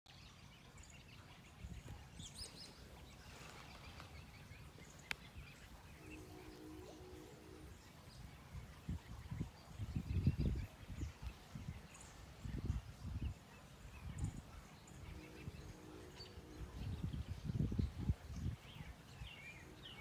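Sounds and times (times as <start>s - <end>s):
faint birds chirping: 0.1s - 20.0s
brief steady tonal hum: 5.7s - 10.6s.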